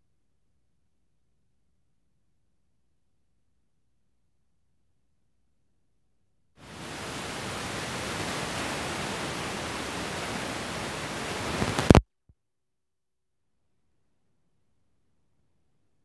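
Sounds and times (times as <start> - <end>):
steady noise hiss: 6.6 - 12.0.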